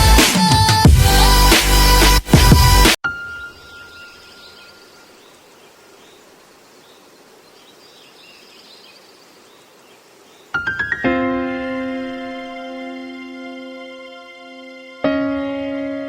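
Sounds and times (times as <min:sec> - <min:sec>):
faint bird chirps: 0:03.1 - 0:10.8
background hiss: 0:03.1 - 0:16.0.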